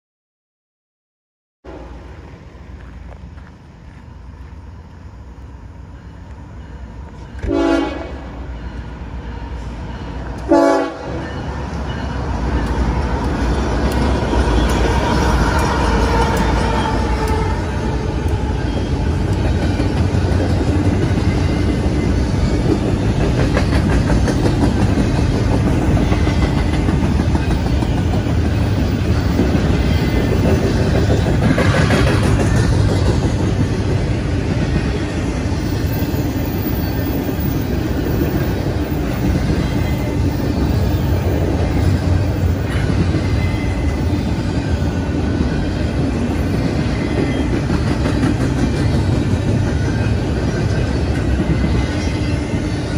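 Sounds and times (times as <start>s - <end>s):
train wheels rumbling on rails: 1.7s - 52.9s.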